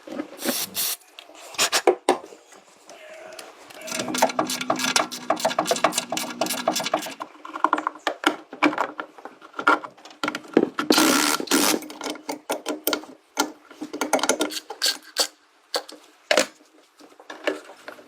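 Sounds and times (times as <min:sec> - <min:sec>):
short hiss: 0:00.4 - 0:01.0
tools clicking and knocking: 0:03.9 - 0:07.3.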